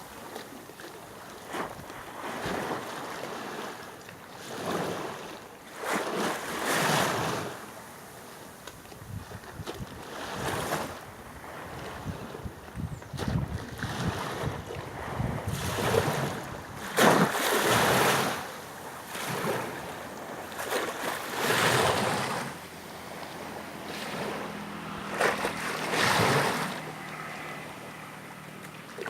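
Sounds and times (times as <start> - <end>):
sea waves washing in: 0.0 - 8.6, 10.0 - 29.0
wind buffeting microphone: 9.0 - 27.0.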